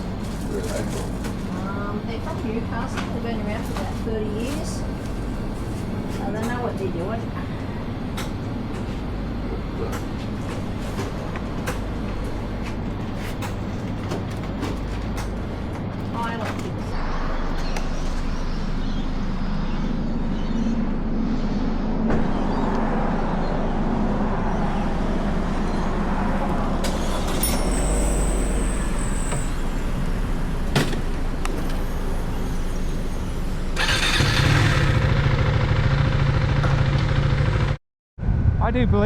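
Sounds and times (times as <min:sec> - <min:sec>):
road vehicles: 0:00.0 - 0:38.6
brief high whine: 0:26.8 - 0:34.4
motorcycle engine running: 0:30.0 - 0:37.8
wind noise: 0:38.2 - 0:39.0.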